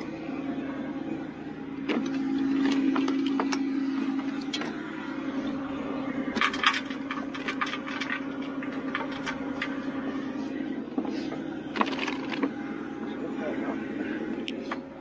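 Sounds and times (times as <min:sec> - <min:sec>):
truck engine humming: 0:00.0 - 0:15.0
metal chain clinking and rattling: 0:06.4 - 0:09.7.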